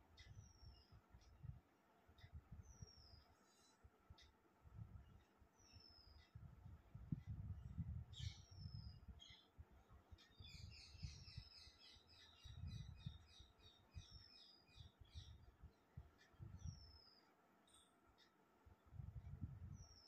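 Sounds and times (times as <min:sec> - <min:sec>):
birdsong whistles and chirps: 0:00.2 - 0:01.0, 0:02.6 - 0:03.8, 0:05.6 - 0:06.4, 0:08.1 - 0:09.5, 0:10.2 - 0:18.0, 0:19.6 - 0:20.0.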